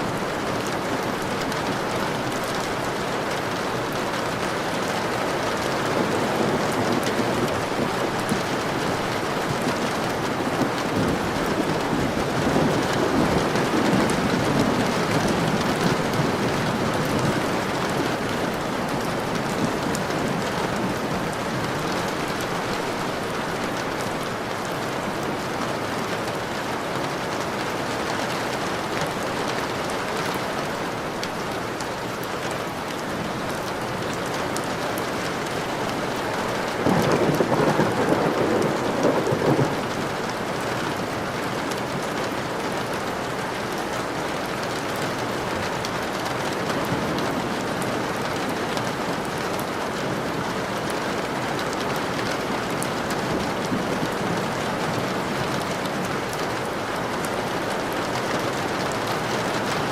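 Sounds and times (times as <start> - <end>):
heavy rain pattering: 0.0 - 59.9
distant thunder rumble: 5.0 - 23.4, 36.0 - 41.1.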